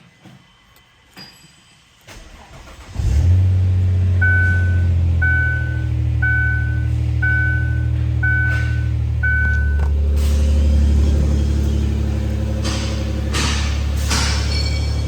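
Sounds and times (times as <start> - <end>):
car engine cranking and idling: 2.1 - 15.0
car warning chime beeping: 4.1 - 10.0.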